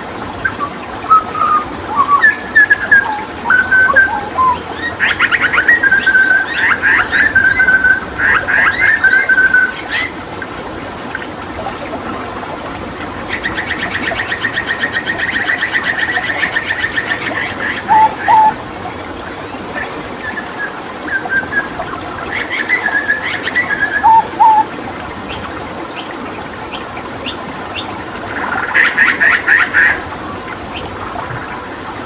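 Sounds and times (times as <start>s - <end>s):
running water hiss: 0.0s - 32.0s
bird whistling and trilling: 0.4s - 10.1s, 13.4s - 18.6s, 20.2s - 24.7s
sharp clicking bird calls: 13.3s - 18.6s.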